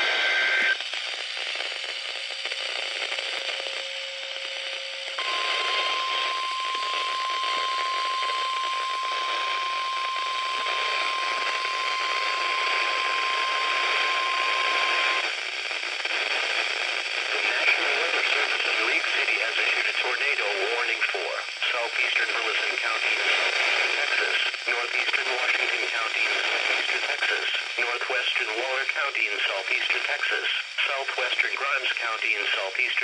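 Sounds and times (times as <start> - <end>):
radio static hiss: 0.0 - 33.0
steady high alarm tone: 5.2 - 15.2.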